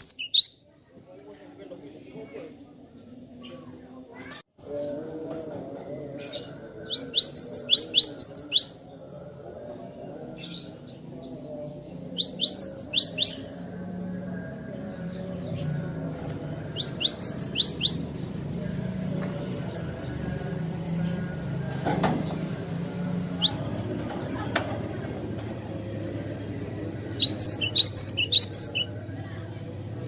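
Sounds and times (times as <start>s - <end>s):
bird singing whistled notes: 0.0s - 0.6s, 6.9s - 8.8s, 12.2s - 13.4s, 16.8s - 18.1s, 23.4s - 23.6s, 27.2s - 28.9s.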